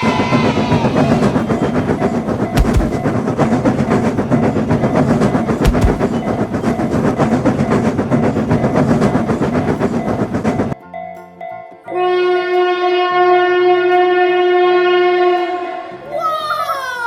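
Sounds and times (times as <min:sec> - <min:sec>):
rapid rail clatter: 0:00.0 - 0:10.8
low thumps: 0:02.6 - 0:03.6, 0:05.6 - 0:06.4.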